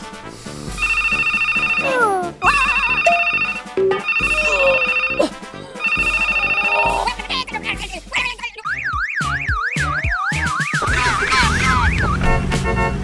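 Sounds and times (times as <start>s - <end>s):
background music: 0.0s - 13.0s
trilling electronic ring: 2.5s - 5.2s, 5.8s - 7.0s.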